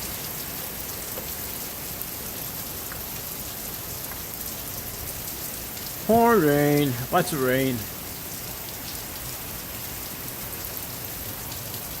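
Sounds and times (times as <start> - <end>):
heavy rain pouring: 0.0 - 12.0
rain drop ticks: 1.0 - 7.9.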